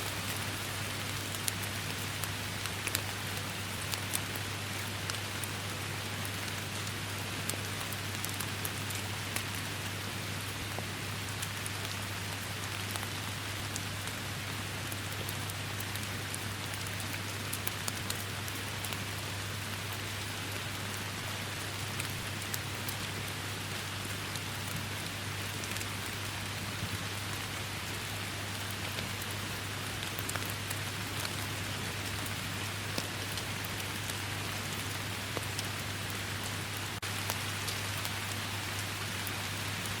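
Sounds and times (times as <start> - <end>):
close raindrops ticking: 0.0 - 40.0
heavy rain: 0.0 - 40.0.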